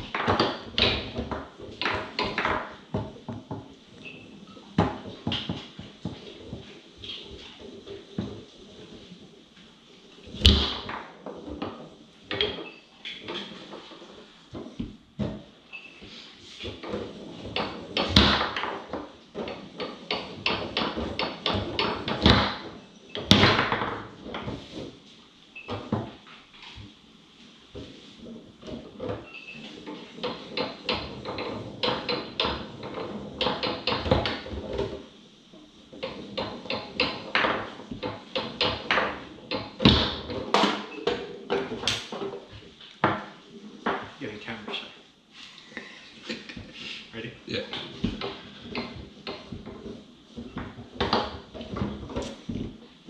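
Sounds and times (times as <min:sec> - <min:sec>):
loud hard foosball hits: 0:00.0 - 0:03.8, 0:10.3 - 0:12.6, 0:16.7 - 0:24.9, 0:28.6 - 0:35.1, 0:36.0 - 0:44.2
foosball plastic clacks: 0:00.0 - 0:27.0, 0:27.7 - 0:44.9, 0:47.7 - 0:53.0
ball rattling off table walls: 0:00.0 - 0:44.9, 0:47.7 - 0:53.0.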